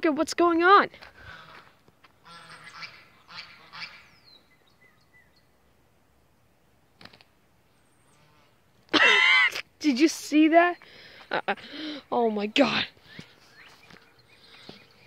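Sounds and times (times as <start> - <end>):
birds honking: 1.2 - 4.3, 12.6 - 15.0.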